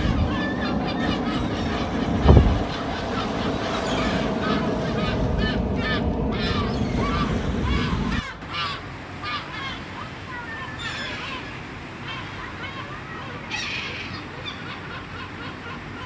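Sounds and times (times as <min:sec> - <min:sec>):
low steady rumble: 0:00.0 - 0:08.2
gulls calling: 0:00.0 - 0:16.0.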